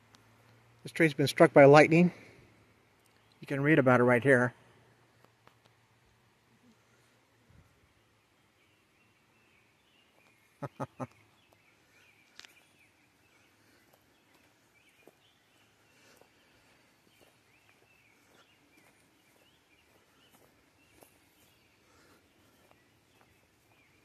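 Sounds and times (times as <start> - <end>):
faint bird chirps: 6.5 - 24.0.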